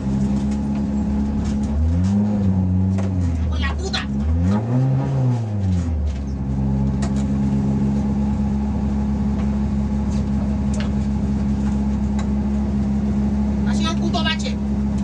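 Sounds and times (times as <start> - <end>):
car engine revving and idling: 0.0 - 15.0.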